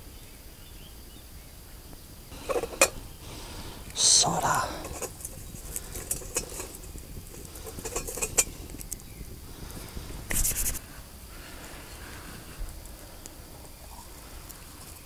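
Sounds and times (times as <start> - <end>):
metal cookware clicks and clinks: 2.4 - 3.0, 5.9 - 8.5
metal cookware rattle: 2.4 - 3.1, 4.3 - 8.5.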